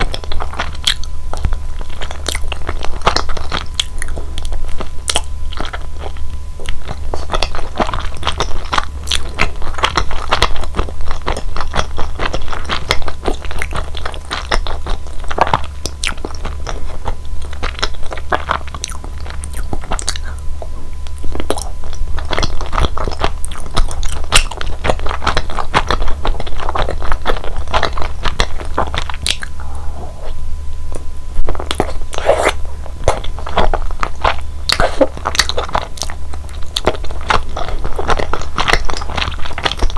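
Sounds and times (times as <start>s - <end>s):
chewing and biting sticky food: 0.0s - 30.4s, 31.4s - 39.9s
steady low hum: 0.0s - 39.9s
wet mouth clicks: 17.8s - 27.0s, 27.8s - 31.0s.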